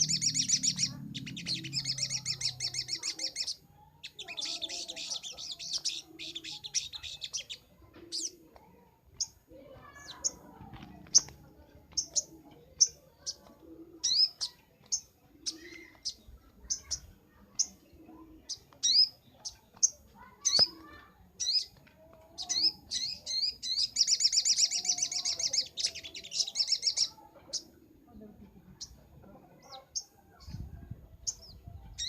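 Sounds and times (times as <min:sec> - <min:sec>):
sunbird chirping and trilling: 0:00.0 - 0:27.8.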